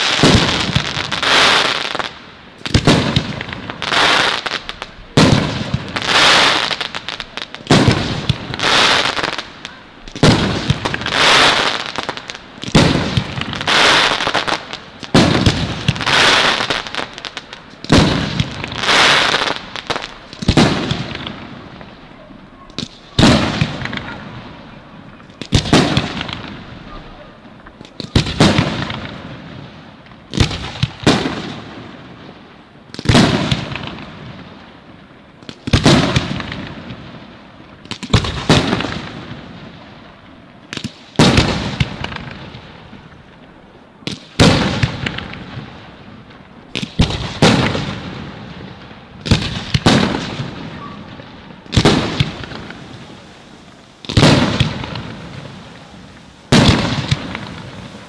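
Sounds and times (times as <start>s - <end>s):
firework shells bursting: 46.7s - 58.0s.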